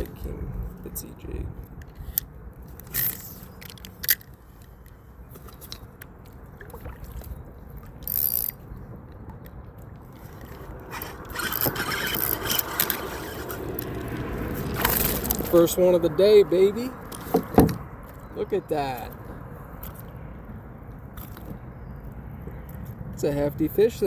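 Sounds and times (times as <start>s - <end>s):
fishing gear scraping kayak hull: 10.1s - 20.2s.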